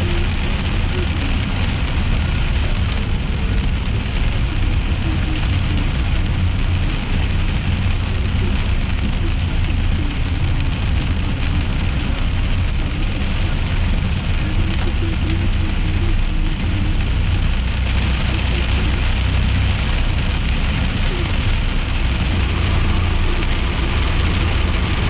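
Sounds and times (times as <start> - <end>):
heavy rain on a car: 0.0 - 25.0
low engine and road rumble: 0.0 - 25.0.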